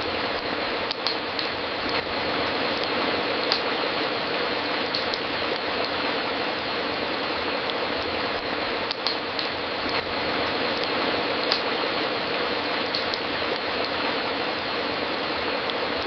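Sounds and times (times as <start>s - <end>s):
fireplace hissing: 0.0s - 16.0s.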